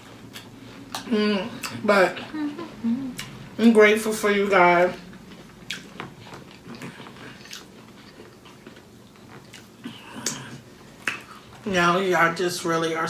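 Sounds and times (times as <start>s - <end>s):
chewing crunchy food: 4.9s - 11.7s.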